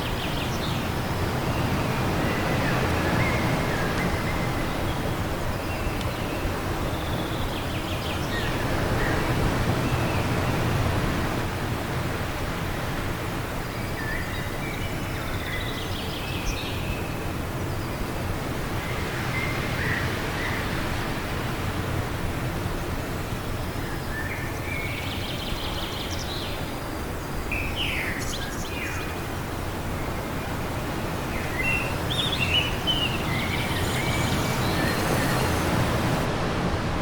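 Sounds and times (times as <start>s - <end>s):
small birds chirping: 23.1s - 36.3s
wind rushing: 30.2s - 37.0s.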